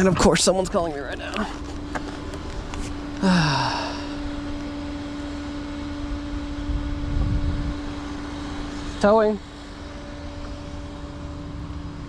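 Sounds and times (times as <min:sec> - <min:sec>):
mechanical hum: 0:00.0 - 0:12.0
short falling sigh: 0:03.2 - 0:04.4.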